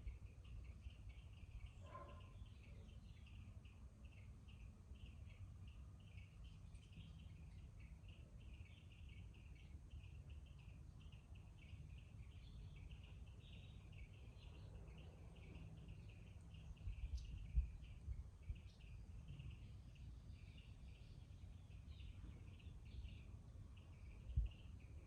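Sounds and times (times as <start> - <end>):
low background rumble: 0.0 - 25.0
small birds chirping: 0.0 - 25.0.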